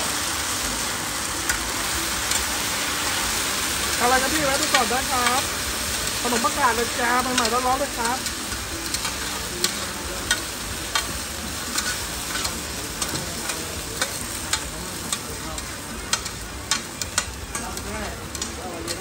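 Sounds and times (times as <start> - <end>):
food sizzling in oil: 0.0 - 19.0
metal spatula clicking and scraping: 7.2 - 19.0.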